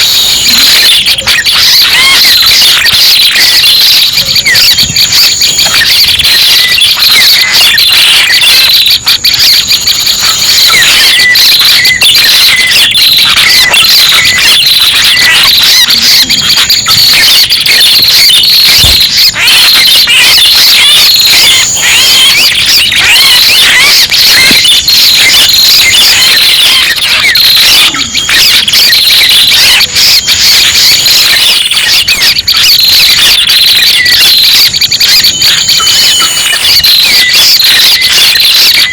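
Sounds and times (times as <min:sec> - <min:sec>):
rapid high-pitched bird chirps: 0:00.0 - 0:38.9.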